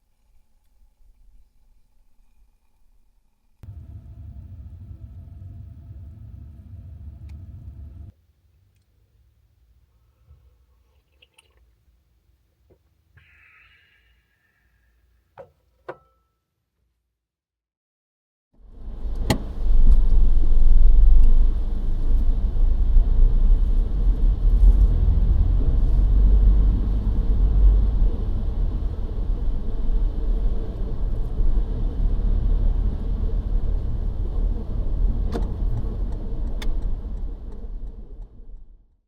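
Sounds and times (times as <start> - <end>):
car road and engine rumble: 3.6 - 8.1, 18.6 - 38.7.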